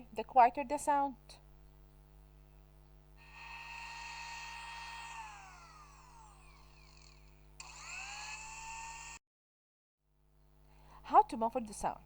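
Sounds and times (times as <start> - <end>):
electric blender motor whining: 3.2 - 9.2.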